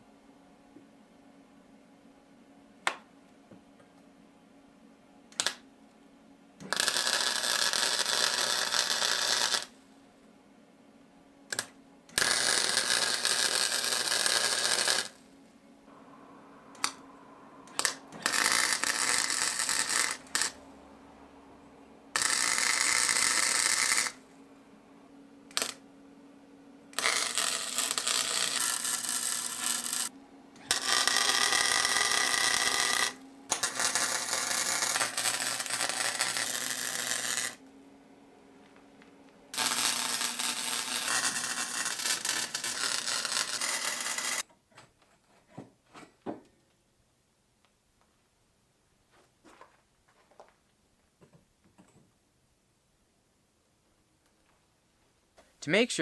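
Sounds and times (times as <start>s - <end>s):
crackling welding arc: 5.4s - 5.6s, 6.6s - 9.8s, 11.5s - 15.3s, 16.7s - 17.0s, 17.6s - 20.6s, 22.1s - 24.2s, 25.5s - 25.8s, 26.9s - 37.6s, 39.5s - 44.4s
low hum: 15.2s - 42.5s
clicks: 16.7s - 17.0s.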